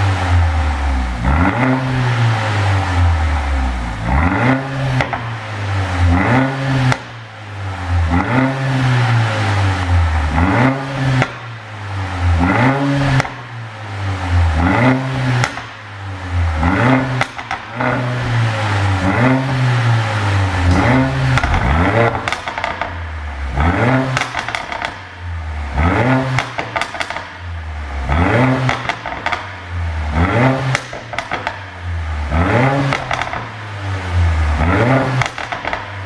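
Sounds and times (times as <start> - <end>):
car engine revving in blips: 0.0 - 36.0
exhaust pops and crackles: 20.6 - 25.1, 28.7 - 29.6, 30.7 - 31.6.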